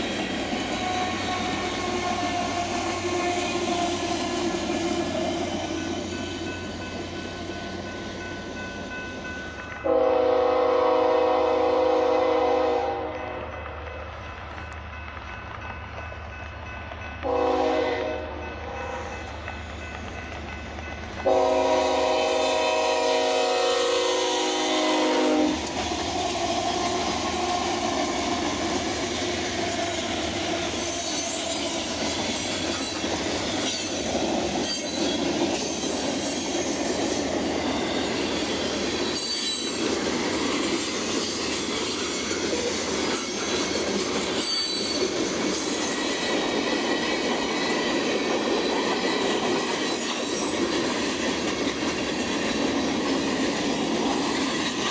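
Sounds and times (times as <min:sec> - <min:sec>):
locomotive horn chord: 0:00.8 - 0:04.5, 0:09.8 - 0:13.4, 0:17.2 - 0:19.2, 0:21.2 - 0:25.7
high wheel squeal: 0:44.4 - 0:45.0.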